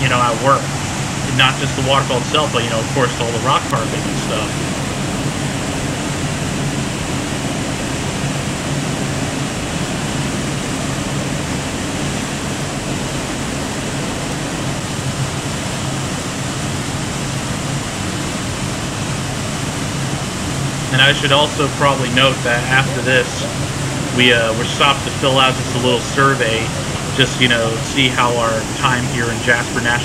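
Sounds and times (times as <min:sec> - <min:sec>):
waterfall rushing: 0:00.1 - 0:30.0.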